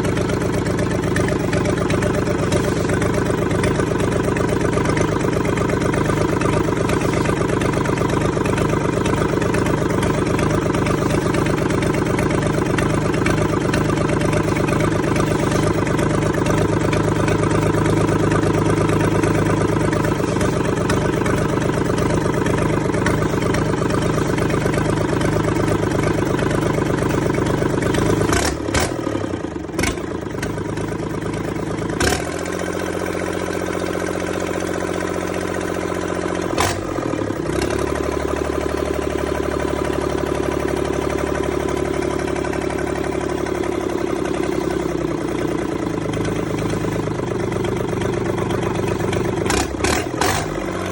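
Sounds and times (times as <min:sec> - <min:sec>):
diesel engine running: 0:00.0 - 0:50.9
sharp engine knocks: 0:29.8 - 0:30.6.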